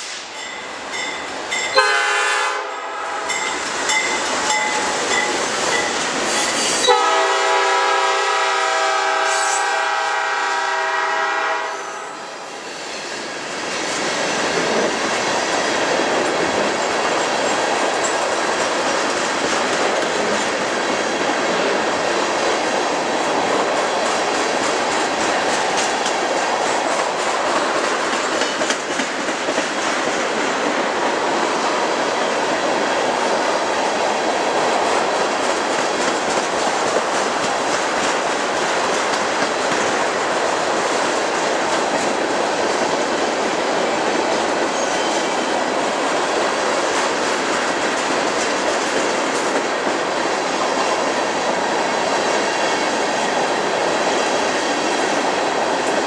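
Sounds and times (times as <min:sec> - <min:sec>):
rail cars rumbling and clacking: 0:00.0 - 0:56.0
diesel locomotive horn: 0:01.7 - 0:03.4, 0:06.8 - 0:12.2.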